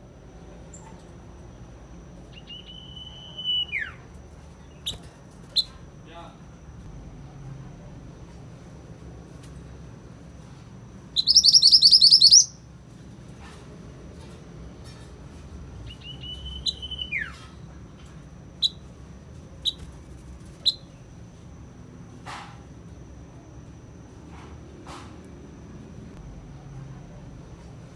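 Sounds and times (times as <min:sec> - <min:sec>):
songbird singing trills and whistles: 0:02.3 - 0:05.8, 0:11.1 - 0:12.6, 0:15.8 - 0:17.5, 0:18.6 - 0:18.9, 0:19.6 - 0:19.9, 0:20.5 - 0:21.0
short sharp bird chips: 0:11.2 - 0:12.5.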